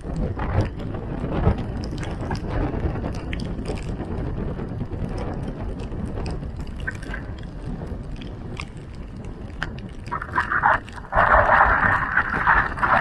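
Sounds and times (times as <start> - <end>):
low rumble of wind: 0.0 - 13.0
water drips and splashes: 6.0 - 13.0.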